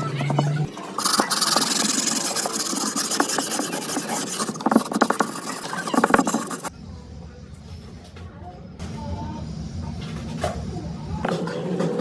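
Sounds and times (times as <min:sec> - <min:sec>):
abrasive rubbing on hard surface: 0:01.0 - 0:06.7.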